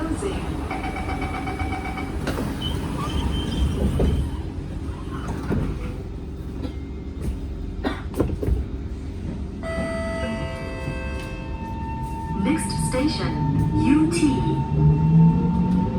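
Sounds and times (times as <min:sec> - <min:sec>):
train running gear rumble: 0:00.0 - 0:15.9
train suspension clunks: 0:00.6 - 0:11.4.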